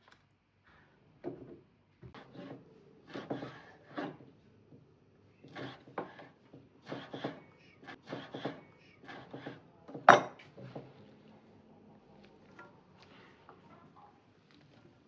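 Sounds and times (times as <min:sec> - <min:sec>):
kitchen things knocking and clattering: 0:09.3 - 0:10.9.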